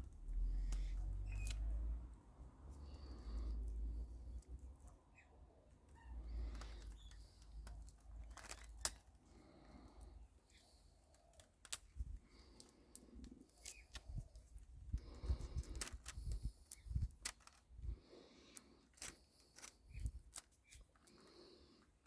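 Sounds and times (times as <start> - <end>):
clicks snips and light knocks: 0.1 - 1.9, 6.4 - 9.3, 10.5 - 17.7, 18.5 - 21.3.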